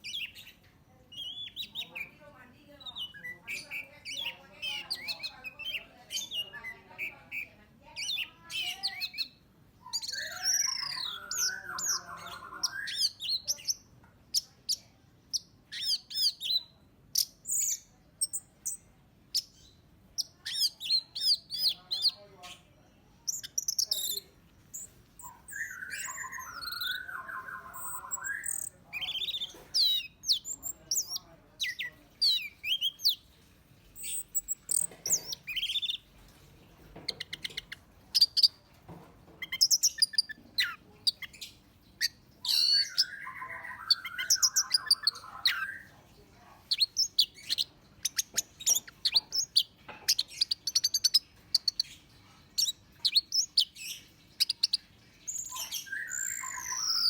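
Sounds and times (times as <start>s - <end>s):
thrush singing whistles and trills: 9.9s - 13.2s, 25.2s - 30.4s, 42.4s - 45.8s, 54.4s - 57.0s.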